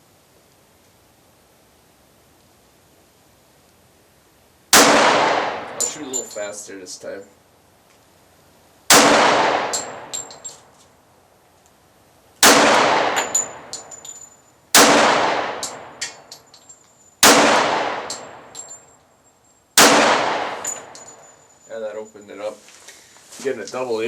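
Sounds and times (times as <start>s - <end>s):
pistol shots: 4.7s - 6.0s, 8.9s - 10.3s, 12.4s - 13.9s, 14.7s - 16.3s, 17.2s - 18.5s, 19.8s - 21.2s
light metallic clinks: 5.7s - 7.0s, 9.7s - 10.8s, 13.0s - 14.6s, 15.6s - 17.3s, 18.0s - 19.8s, 20.5s - 22.6s.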